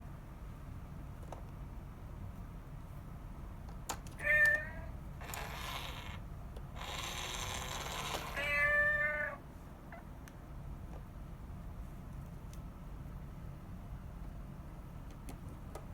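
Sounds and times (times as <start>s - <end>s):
cat meowing: 4.2s - 5.0s, 8.3s - 9.4s.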